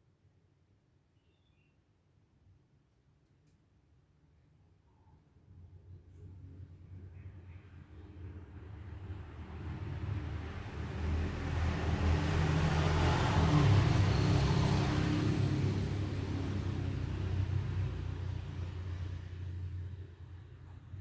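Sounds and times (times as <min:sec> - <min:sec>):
vehicle engine passing by: 0:08.1 - 0:21.0.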